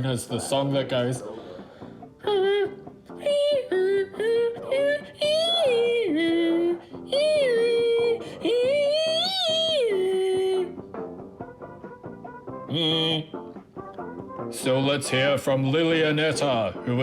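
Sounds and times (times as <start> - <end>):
quiet backing music: 0.0 - 17.0
person singing a melody: 2.2 - 10.8, 12.6 - 13.4.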